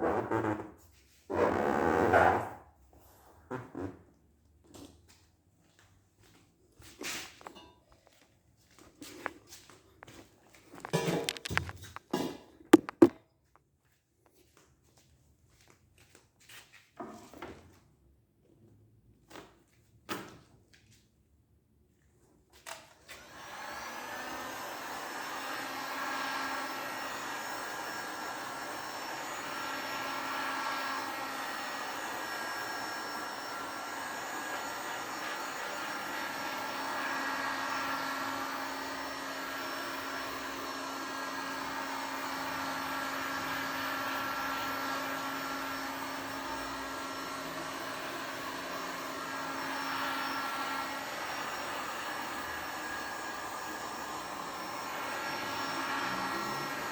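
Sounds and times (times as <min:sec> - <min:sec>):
small electric motor humming: 0:23.2 - 0:56.9.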